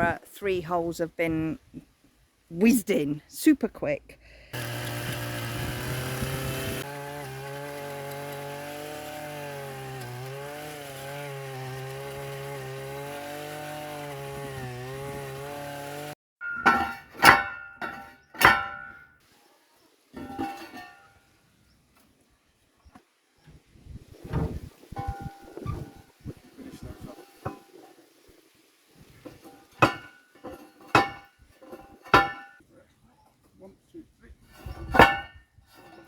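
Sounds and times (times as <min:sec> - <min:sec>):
earth auger engine drilling: 0:04.5 - 0:16.2.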